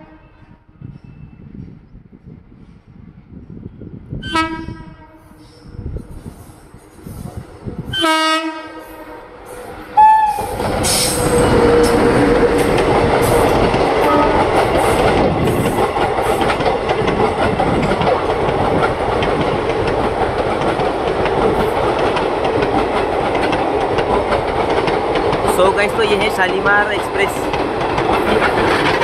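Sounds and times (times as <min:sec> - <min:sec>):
train rushing past: 0:03.9 - 0:29.0
train horn blasts: 0:04.2 - 0:05.5, 0:07.9 - 0:09.4, 0:10.0 - 0:12.4, 0:14.0 - 0:14.6
wheels clacking over rail joints: 0:10.4 - 0:29.0.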